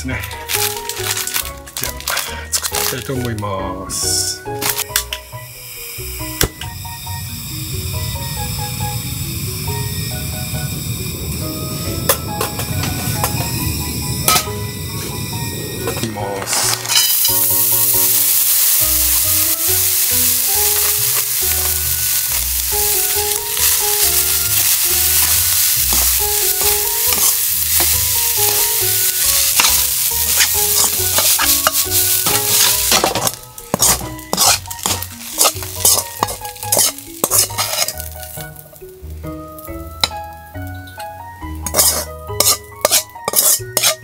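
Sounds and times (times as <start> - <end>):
rice sizzling in a wok: 0.4 - 3.3, 3.9 - 44.0
metal ladle scraping a wok: 14.3 - 14.6, 16.4 - 38.4, 41.6 - 44.0.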